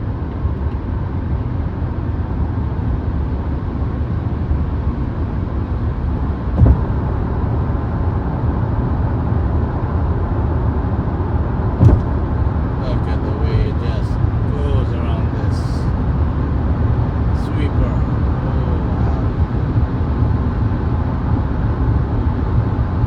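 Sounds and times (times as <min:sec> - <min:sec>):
road and tyre rumble: 0:00.0 - 0:23.0
thump: 0:06.6 - 0:07.5, 0:11.8 - 0:12.4.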